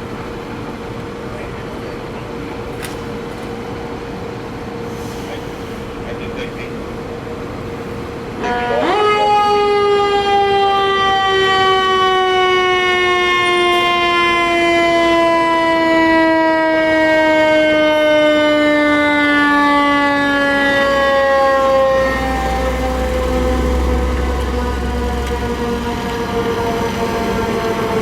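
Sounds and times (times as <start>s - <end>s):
mechanical siren wailing: 8.4s - 28.0s.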